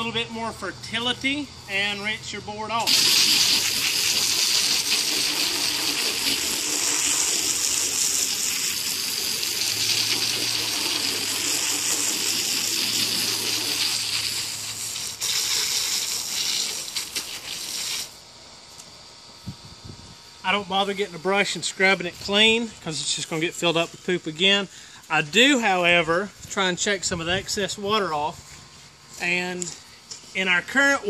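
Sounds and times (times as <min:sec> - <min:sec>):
water jet spraying: 0:02.8 - 0:18.2.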